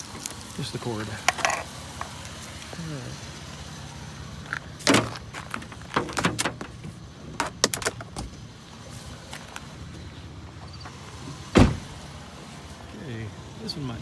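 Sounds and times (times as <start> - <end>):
low engine hum: 0.0 - 14.0
scrap knocking and clattering: 4.9 - 8.4.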